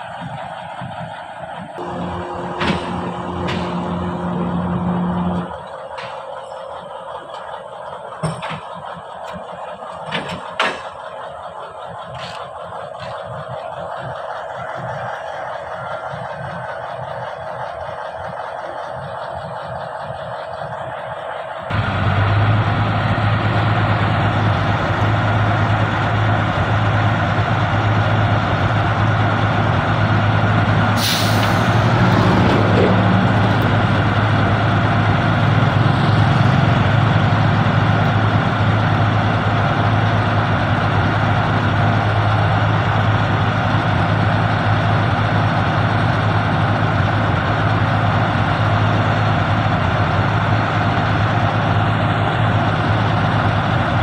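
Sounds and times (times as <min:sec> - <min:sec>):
heavy truck engine running: 0:00.0 - 0:54.0
air brakes hissing: 0:30.9 - 0:32.4.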